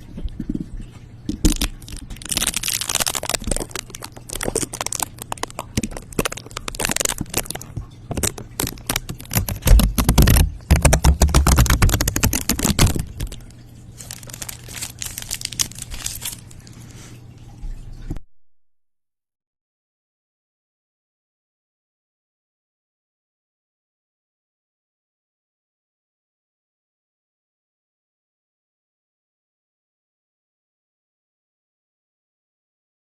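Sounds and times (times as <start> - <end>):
crinkling handling noise: 0.0 - 18.2.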